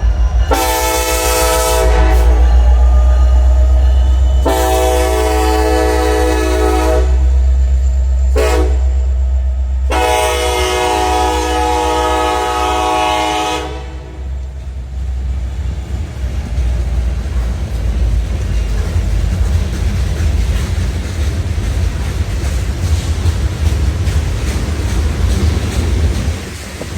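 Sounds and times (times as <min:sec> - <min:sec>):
low rumble of passing train: 0:00.0 - 0:26.9
locomotive air horn blasts: 0:00.5 - 0:02.6, 0:04.4 - 0:07.4, 0:08.3 - 0:09.1, 0:09.8 - 0:14.4.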